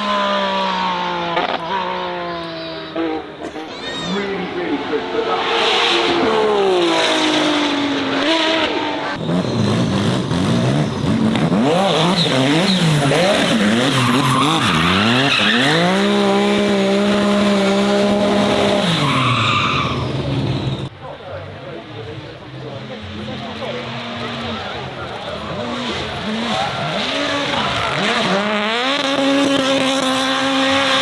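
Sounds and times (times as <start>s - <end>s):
racing car engine revving: 0.0s - 20.9s, 22.0s - 31.0s
tyre squeal: 1.6s - 4.4s, 9.1s - 11.1s, 11.7s - 16.3s, 18.6s - 20.9s.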